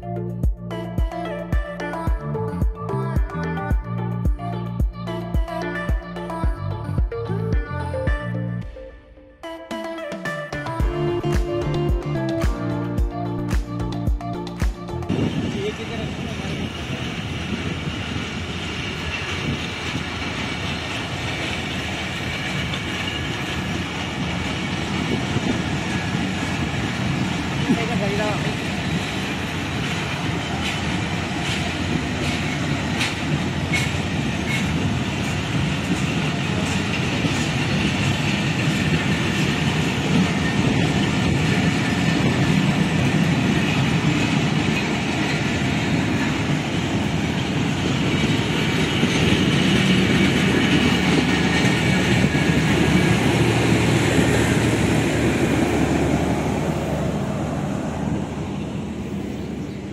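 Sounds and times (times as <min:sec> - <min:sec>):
train coaches rumbling past: 0:14.2 - 0:59.9
wheels clacking over rail joints: 0:15.7 - 0:57.4.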